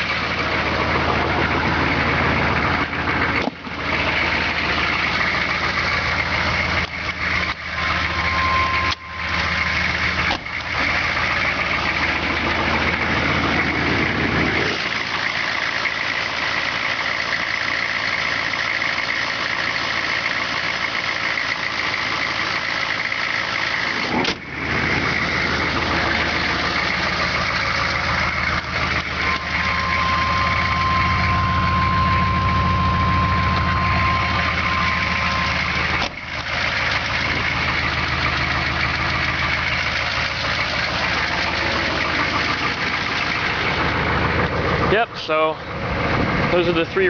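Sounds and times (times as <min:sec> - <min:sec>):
vehicle engines idling: 0:00.0 - 0:47.0
short beep: 0:07.7 - 0:09.4, 0:29.2 - 0:35.7.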